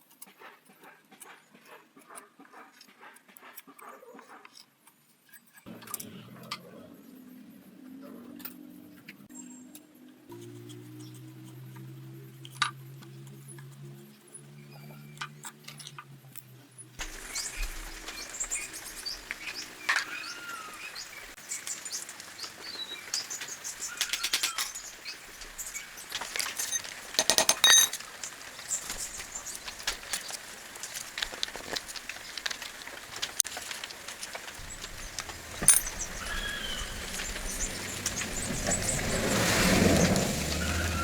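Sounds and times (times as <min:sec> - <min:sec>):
birds chirping: 0:17.0 - 0:30.7, 0:33.6 - 0:41.0
clinks of hard objects: 0:26.0 - 0:29.2, 0:29.8 - 0:36.4.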